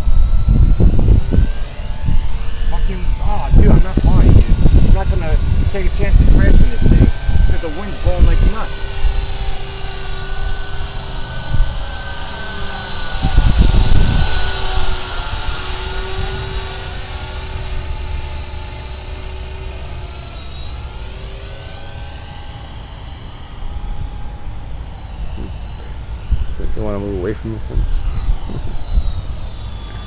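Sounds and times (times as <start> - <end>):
wind buffeting microphone: 0.0 - 21.0, 23.5 - 30.0
rc helicopter rotors whining: 0.0 - 30.0.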